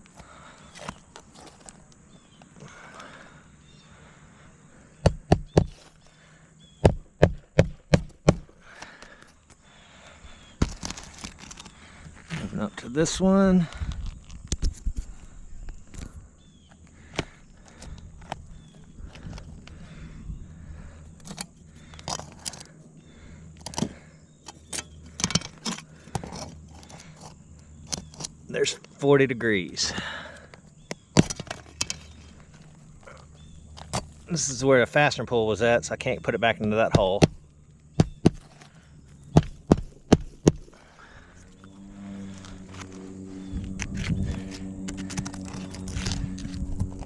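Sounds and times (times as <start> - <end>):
hammer striking nails: 5.0 - 5.7, 6.8 - 8.5, 38.0 - 38.4
metal tools scraping roof shingles: 23.6 - 28.3.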